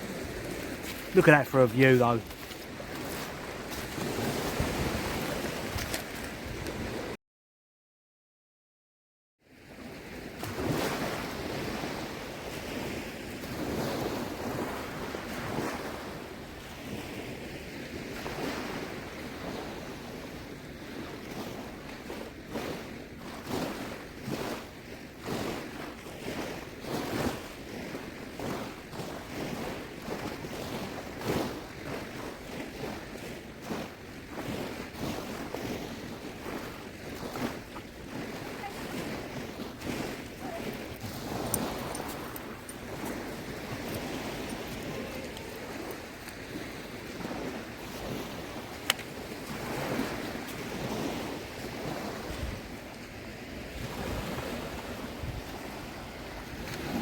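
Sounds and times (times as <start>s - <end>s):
seawater sloshing and splashing: 0.0s - 7.2s, 20.8s - 57.0s
wind on microphone: 0.0s - 7.2s, 9.6s - 57.0s.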